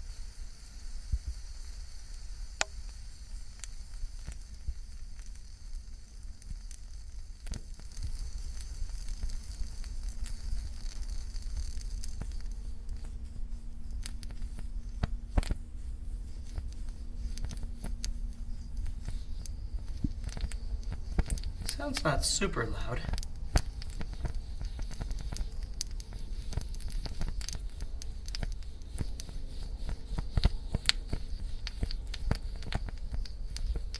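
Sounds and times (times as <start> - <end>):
low steady rumble: 0.7 - 33.9
gel fuel crackling: 13.9 - 33.9.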